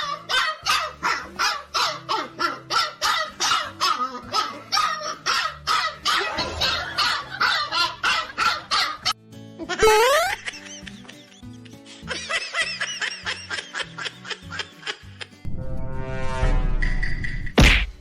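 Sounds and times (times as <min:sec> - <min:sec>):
dog barking: 0:00.0 - 0:09.2.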